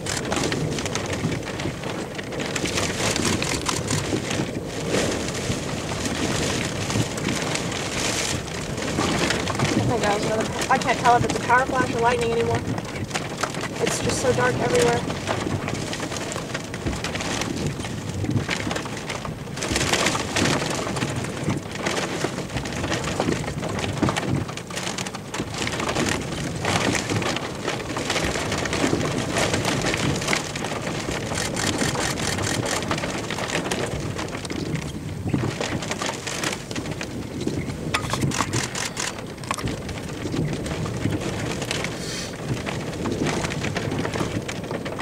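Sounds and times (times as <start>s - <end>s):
heavy rain on vehicle roof: 0.0s - 45.0s.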